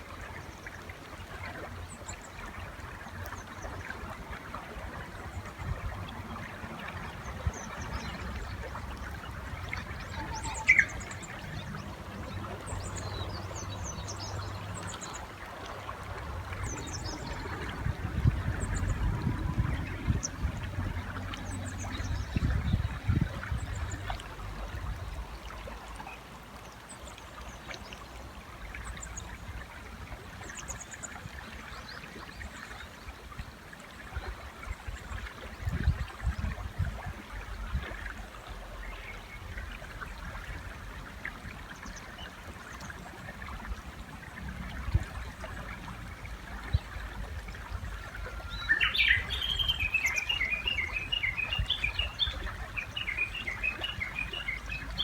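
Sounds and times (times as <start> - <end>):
river running: 0.0 - 55.0
faint high bird chirps: 10.1 - 11.2
warbler calling loudly: 10.2 - 11.4, 48.5 - 55.0.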